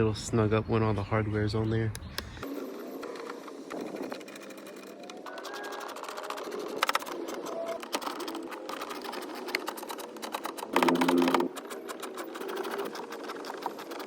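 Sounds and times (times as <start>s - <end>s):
hand tool rapid clicking: 3.0s - 14.0s
power driver buzz: 10.7s - 12.1s.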